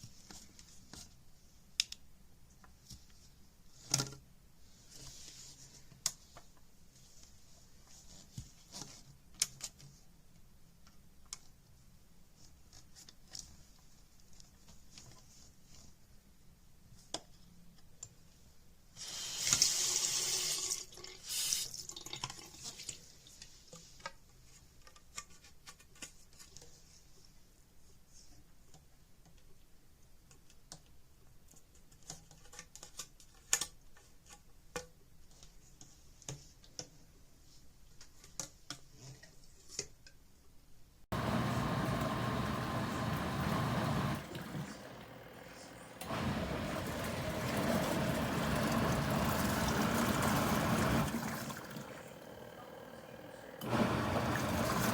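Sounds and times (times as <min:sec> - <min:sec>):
water running: 0:41.1 - 0:54.9.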